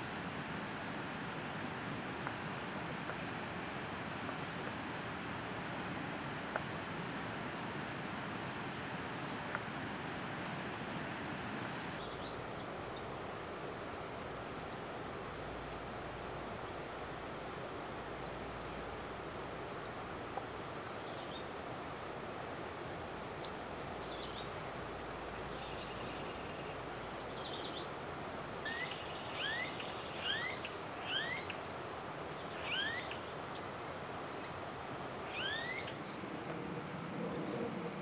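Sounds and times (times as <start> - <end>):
background hiss: 0.0 - 38.0
bird chirping: 28.7 - 36.0.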